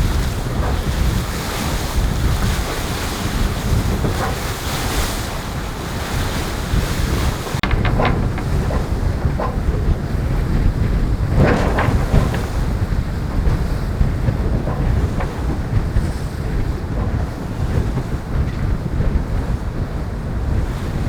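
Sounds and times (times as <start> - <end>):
water rushing along hull: 0.0 - 21.0
wind buffeting microphone: 0.0 - 21.0.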